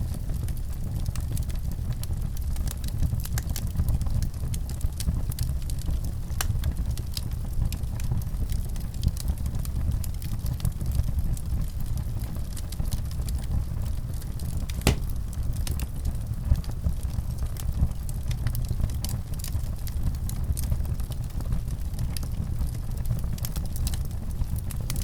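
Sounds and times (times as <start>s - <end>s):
wood fire crackling: 14.7s - 15.8s, 18.6s - 25.0s.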